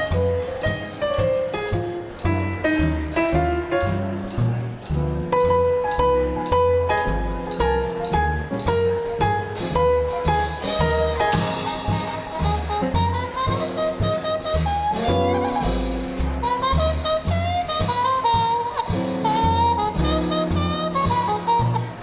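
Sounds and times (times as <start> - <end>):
bass and drums beat: 0.0 - 22.0
piano: 0.0 - 22.0
trumpet: 10.6 - 22.0
saxophone: 10.7 - 22.0.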